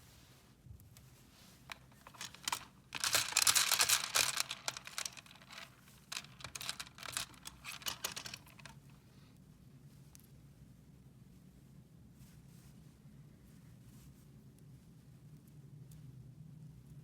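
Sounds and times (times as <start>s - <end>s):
small hard objects clicking and rattling: 1.7s - 8.7s.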